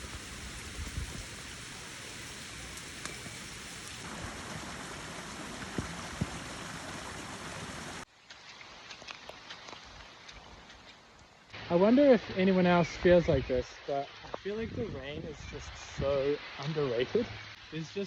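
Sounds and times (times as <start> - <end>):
raindrop ticks: 0.0 - 6.7
rain hissing: 0.0 - 8.1, 11.0 - 18.0.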